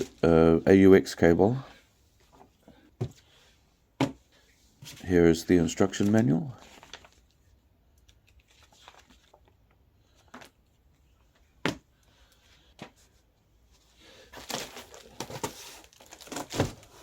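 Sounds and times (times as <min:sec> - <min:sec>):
plastic packaging crinkling: 0:08.0 - 0:10.6, 0:14.2 - 0:17.0.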